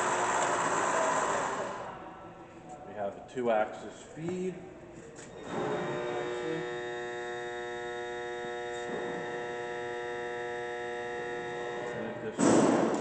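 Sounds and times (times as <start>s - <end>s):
milling machine humming and whining: 0.0s - 2.1s, 5.2s - 12.4s.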